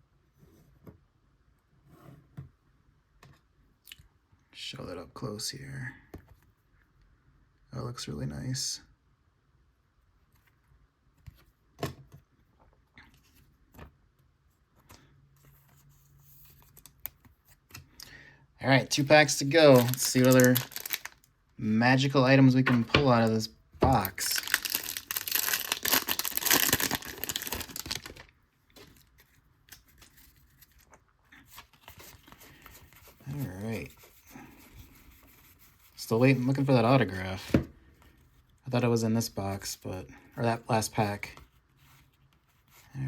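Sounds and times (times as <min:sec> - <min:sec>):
foil wrapper crinkling and tearing: 0:18.9 - 0:21.3, 0:23.9 - 0:28.3.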